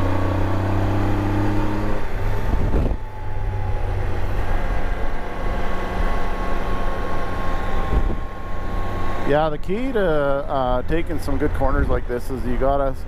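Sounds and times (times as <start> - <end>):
wind noise on microphone: 2.2 - 3.6, 7.8 - 8.3.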